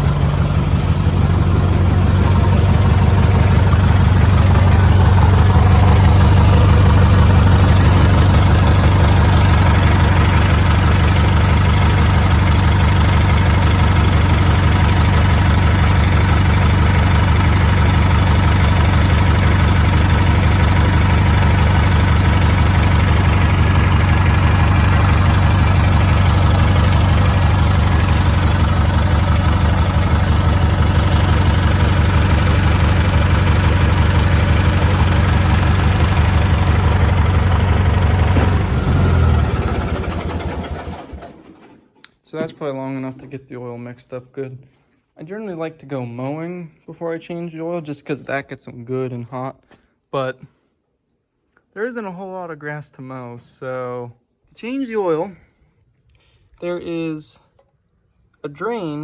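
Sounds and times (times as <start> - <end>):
tractor engine idling: 0.0 - 43.2.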